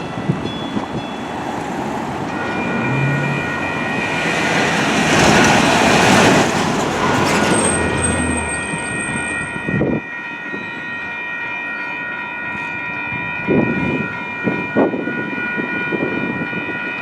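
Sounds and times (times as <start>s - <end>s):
steady high-pitched tones: 0.0s - 5.7s
light rail train passing: 0.0s - 17.0s.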